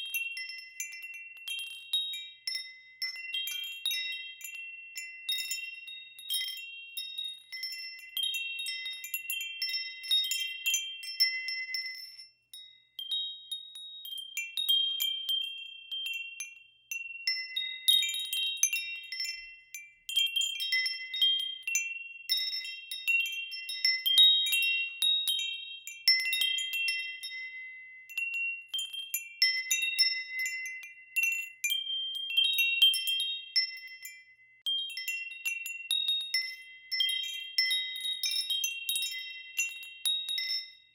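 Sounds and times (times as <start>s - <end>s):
wind chimes ringing: 0.0s - 40.9s.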